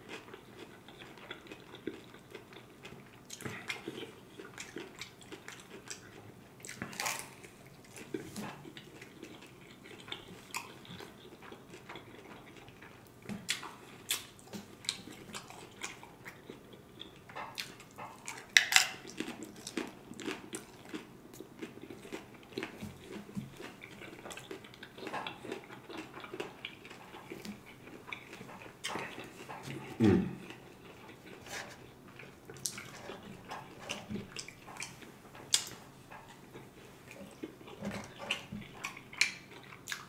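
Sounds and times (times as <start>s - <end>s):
person chewing crunchy taco: 0.0s - 40.0s
wet mouth sounds: 26.9s - 31.9s.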